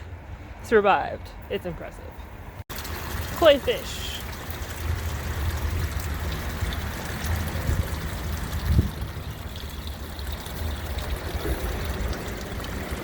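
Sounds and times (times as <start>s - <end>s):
water trickling into pond: 2.6s - 13.0s.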